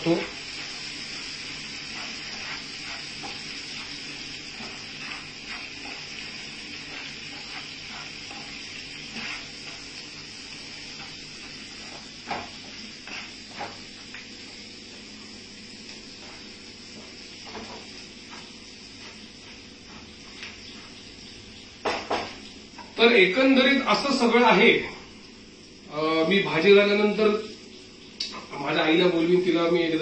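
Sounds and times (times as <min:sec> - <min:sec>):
vegetables sizzling in a frying pan: 0:00.0 - 0:30.0
wooden spatula scraping a pan: 0:00.6 - 0:09.9, 0:10.9 - 0:13.8.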